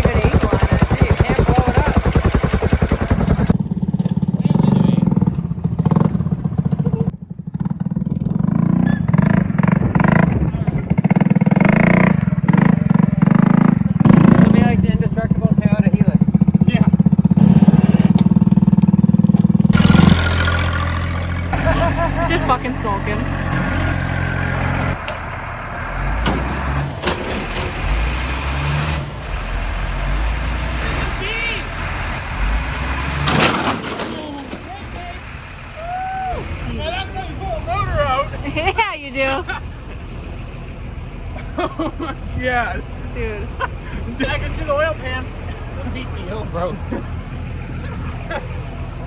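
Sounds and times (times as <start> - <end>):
heavy truck engine under load: 5.1 - 42.3, 42.9 - 49.0
sharp knocks: 26.1 - 27.9.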